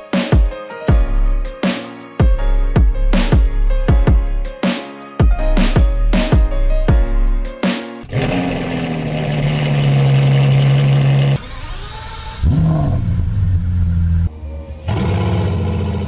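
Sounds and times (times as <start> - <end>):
car engine starting and idling: 8.1 - 16.0.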